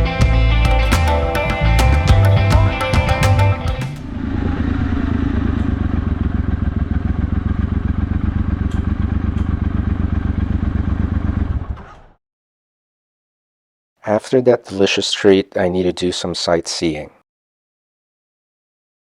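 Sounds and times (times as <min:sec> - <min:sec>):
motorcycle engine running: 0:05.4 - 0:11.7.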